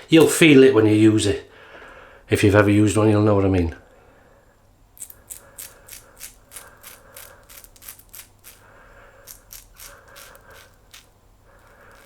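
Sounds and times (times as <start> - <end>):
razor scraping stubble: 5.0 - 12.0.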